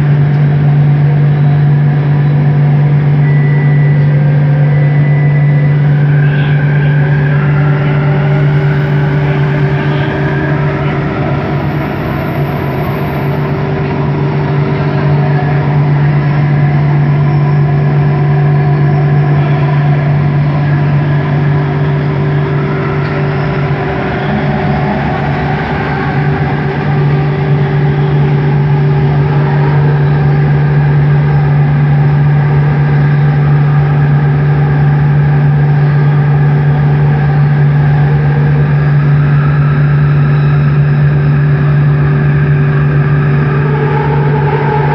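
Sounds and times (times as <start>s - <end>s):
train motor humming: 0.0s - 44.9s
train rolling noise: 0.0s - 44.9s.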